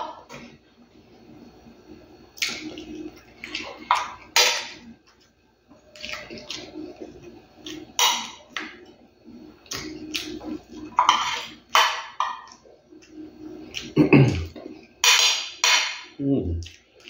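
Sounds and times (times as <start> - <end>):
man chewing food: 2.3 - 15.5, 16.6 - 17.0.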